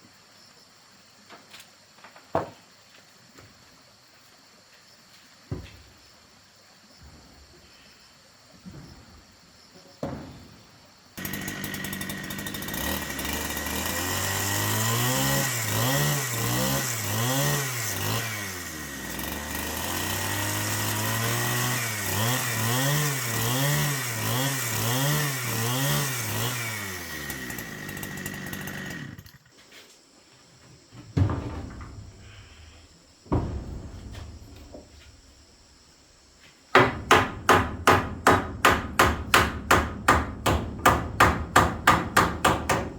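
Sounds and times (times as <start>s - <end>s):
chainsaw engine revving: 11.2s - 29.5s
sharp knocks: 33.3s - 35.2s, 36.7s - 42.9s.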